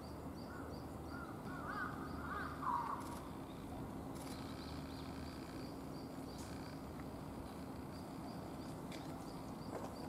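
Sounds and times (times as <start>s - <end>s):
bird calling: 0.4s - 6.8s.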